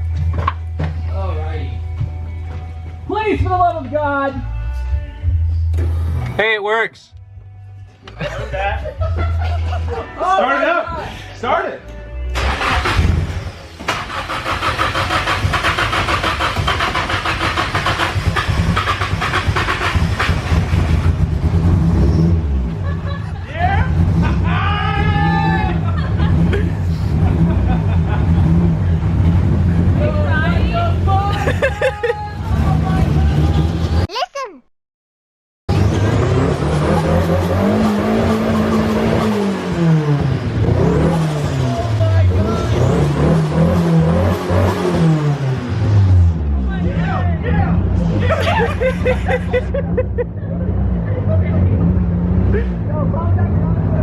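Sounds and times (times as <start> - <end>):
engine cranking on starter: 12.4 - 21.2.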